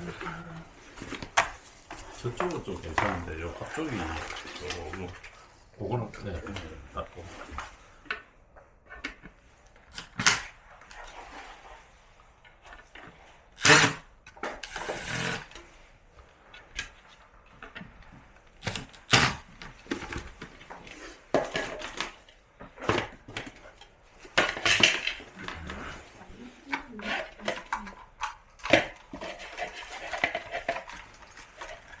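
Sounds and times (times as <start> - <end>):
plastic parts clicking and knocking: 9.9 - 10.5, 16.6 - 20.6, 21.3 - 25.3.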